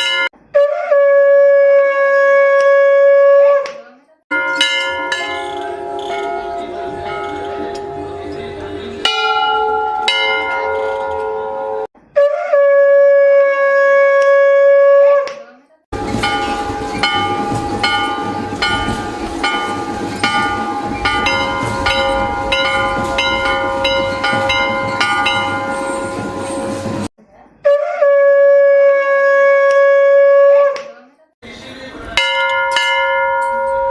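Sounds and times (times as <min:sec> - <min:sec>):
bell struck rapidly: 0:00.0 - 0:00.3, 0:04.3 - 0:11.9, 0:16.0 - 0:27.1, 0:32.2 - 0:33.9
temple bell ringing: 0:00.0 - 0:00.3, 0:04.3 - 0:11.9, 0:16.0 - 0:27.1, 0:32.2 - 0:33.9
conch shell blast: 0:27.8 - 0:30.8.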